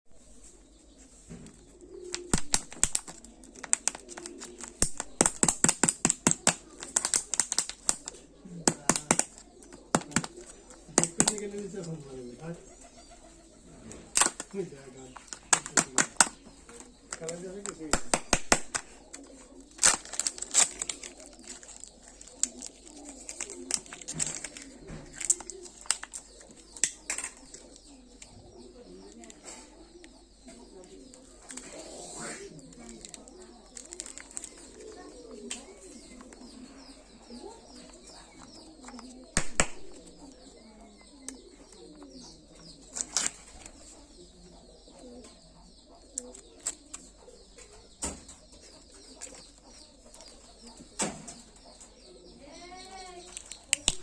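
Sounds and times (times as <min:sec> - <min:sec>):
bird cooing: 0:00.1 - 0:54.0
packaging crinkling: 0:02.1 - 0:11.9, 0:14.1 - 0:27.7, 0:32.8 - 0:35.0, 0:39.4 - 0:40.3, 0:52.9 - 0:54.0.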